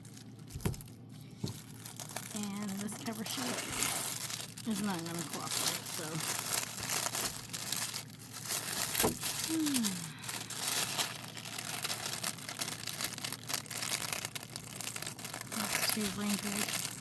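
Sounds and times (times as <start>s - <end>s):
plastic sheet crinkling: 0.0s - 17.0s.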